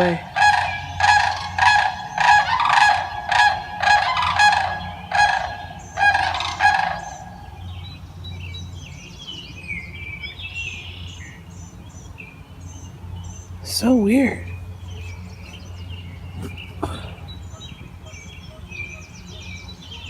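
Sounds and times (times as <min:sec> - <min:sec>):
cranes rattling bugle calls: 0:00.0 - 0:07.7, 0:14.7 - 0:20.0
small birds chirping: 0:00.0 - 0:20.0.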